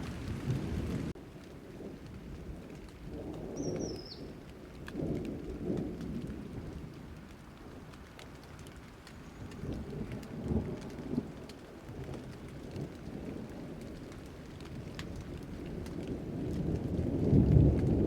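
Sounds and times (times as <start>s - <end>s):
low rumbles of thunder: 0.0s - 18.0s
raindrops pattering: 0.0s - 18.0s
steady rain: 0.0s - 18.0s.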